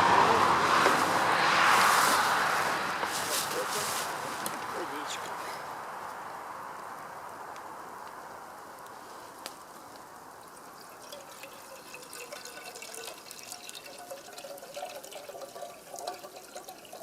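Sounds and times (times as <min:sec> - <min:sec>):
water pouring into a pot: 0:10.4 - 0:17.0.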